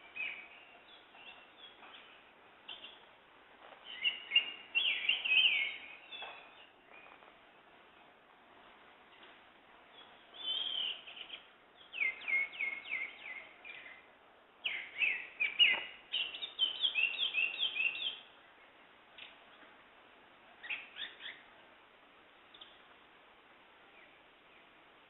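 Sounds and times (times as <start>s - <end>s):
songbirds singing: 0.0s - 8.2s, 9.0s - 19.8s, 20.5s - 21.8s, 22.4s - 23.2s, 23.8s - 25.0s.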